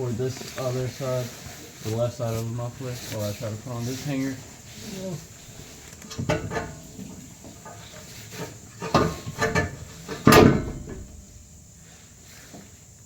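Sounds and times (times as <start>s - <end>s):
knocks and clanks of exhaust muffler: 5.5s - 12.6s.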